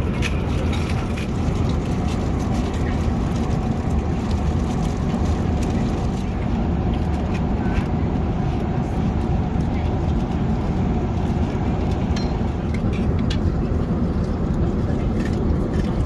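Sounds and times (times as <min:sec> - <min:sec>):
airplane cabin roar: 0:00.0 - 0:16.0.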